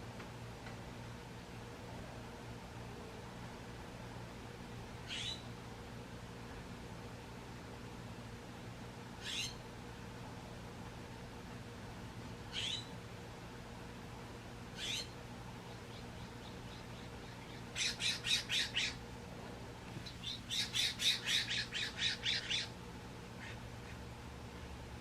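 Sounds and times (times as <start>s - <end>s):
faint steady hum: 0.0s - 25.0s
woodpecker harsh calls: 5.1s - 5.4s, 9.2s - 9.6s, 12.5s - 12.9s, 14.8s - 15.2s, 15.8s - 19.0s, 20.2s - 22.7s.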